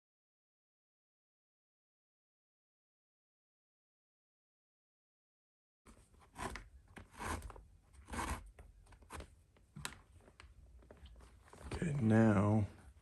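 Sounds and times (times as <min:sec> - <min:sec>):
leather lace rasping through holes: 0:06.2 - 0:09.2.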